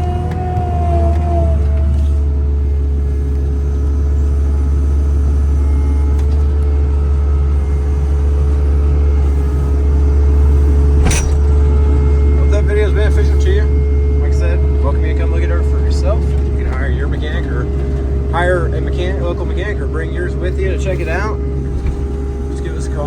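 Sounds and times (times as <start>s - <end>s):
diesel engine running: 0.0s - 23.0s
steady whine: 7.6s - 23.0s
sharp metallic clank: 10.9s - 11.8s.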